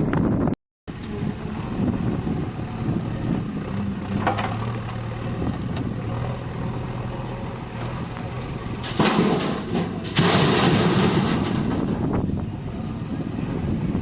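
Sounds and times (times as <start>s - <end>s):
diesel engine running: 0.0s - 14.0s
metal clank: 8.8s - 12.2s.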